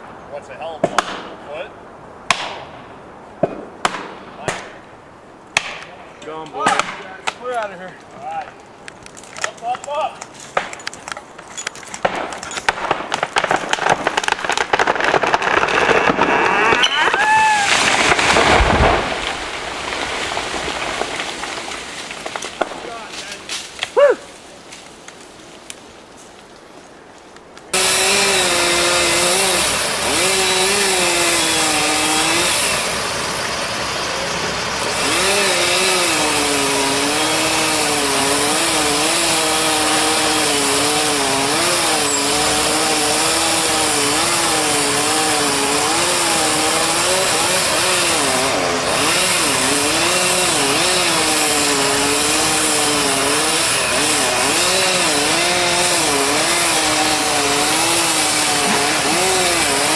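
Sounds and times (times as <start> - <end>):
chainsaw running at high revs: 27.8 - 33.4, 34.5 - 59.9.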